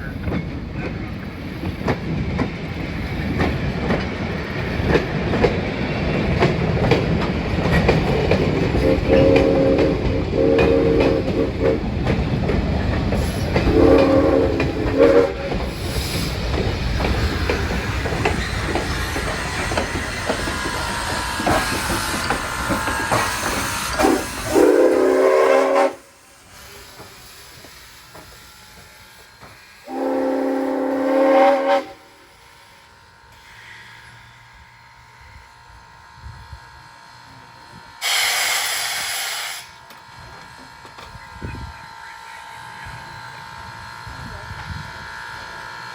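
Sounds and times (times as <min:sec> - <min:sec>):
train rumbling and clattering: 0:00.0 - 0:45.9
train horn blasts: 0:08.8 - 0:11.8, 0:13.6 - 0:15.6, 0:24.0 - 0:26.1, 0:29.8 - 0:32.2.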